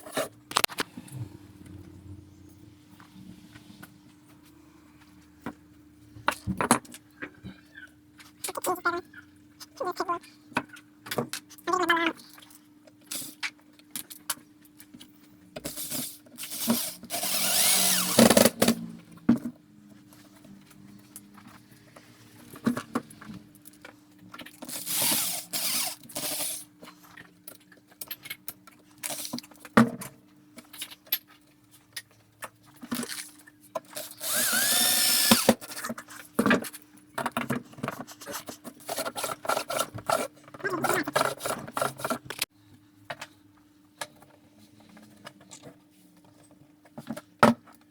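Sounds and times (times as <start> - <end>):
power drill: 16.4 - 18.8, 24.7 - 26.6, 34.0 - 35.6.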